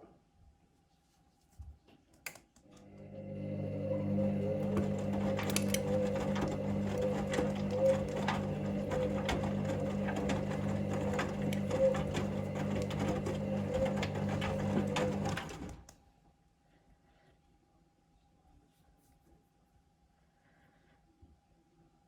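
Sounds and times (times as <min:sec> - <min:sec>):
washing machine drum tumbling: 0:03.2 - 0:15.9.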